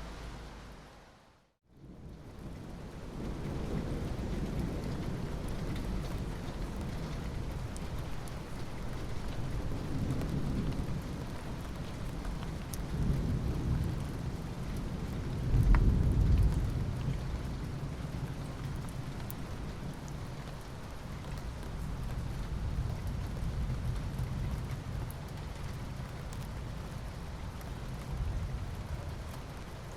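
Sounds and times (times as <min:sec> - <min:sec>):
steady rain falling: 0:00.0 - 0:29.9
rain drop ticks: 0:02.4 - 0:29.9
low rolling thunder: 0:09.0 - 0:19.9.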